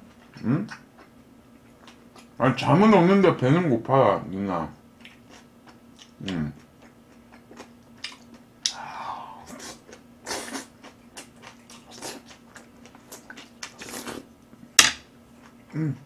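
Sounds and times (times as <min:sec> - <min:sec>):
person chewing and crunching food: 0:00.0 - 0:02.4, 0:05.0 - 0:14.4, 0:15.3 - 0:16.0.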